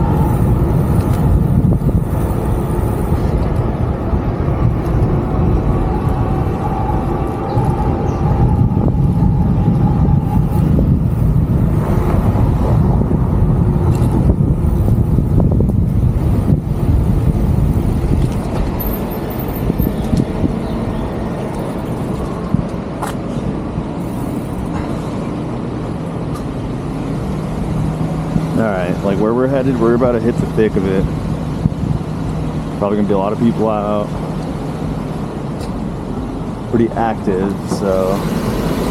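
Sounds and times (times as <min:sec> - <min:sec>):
wind on microphone: 0:00.0 - 0:25.6
cars passing: 0:00.0 - 0:38.9
road noise rumble: 0:00.0 - 0:38.9.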